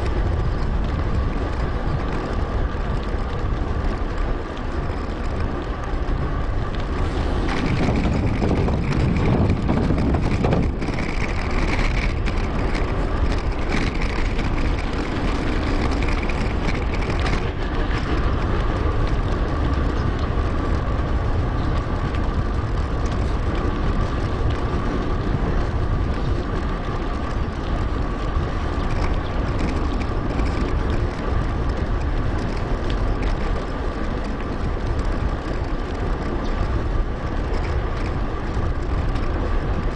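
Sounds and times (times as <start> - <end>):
bike tyre rumble: 0.0 - 39.9
wind rushing over microphone: 0.0 - 39.9.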